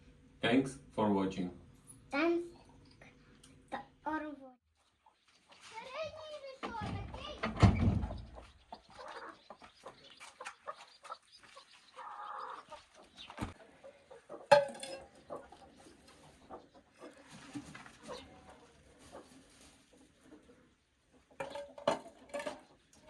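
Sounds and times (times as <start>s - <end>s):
hen clucking: 4.8s - 22.9s.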